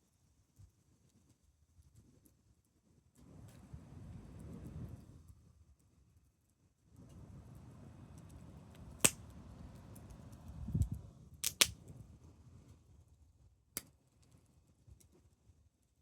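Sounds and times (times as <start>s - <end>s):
wood fire crackling: 7.1s - 11.9s.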